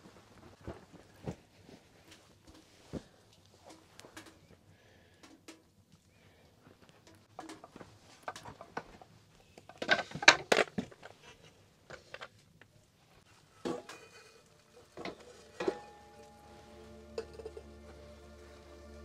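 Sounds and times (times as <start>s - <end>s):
utensils knocking and clattering: 7.1s - 8.9s, 13.6s - 17.9s
music: 14.8s - 19.0s.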